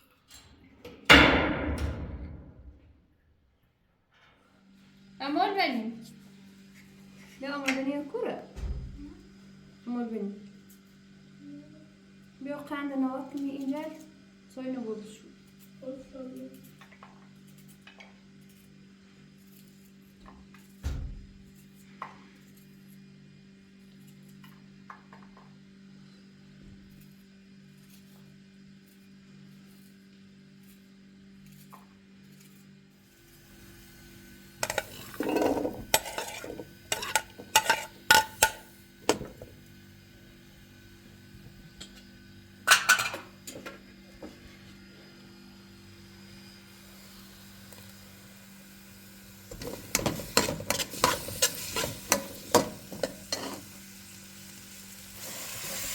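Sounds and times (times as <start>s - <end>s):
steady low hum: 33.2s - 55.2s
dishes clinking and clattering: 34.6s - 39.6s, 42.7s - 43.8s, 49.5s - 53.7s.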